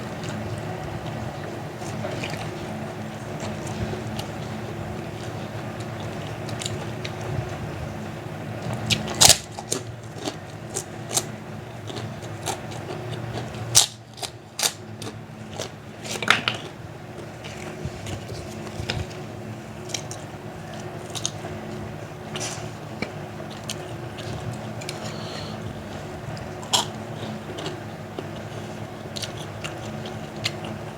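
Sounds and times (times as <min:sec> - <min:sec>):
crunching fried food: 0:00.0 - 0:30.9.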